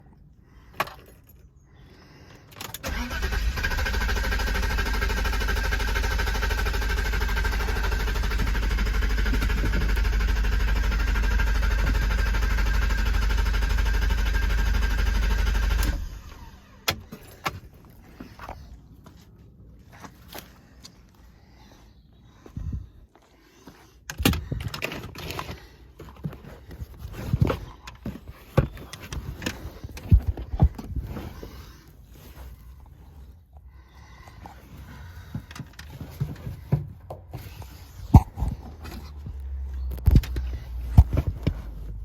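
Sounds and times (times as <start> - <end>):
car engine cranking: 2.5 - 17.7.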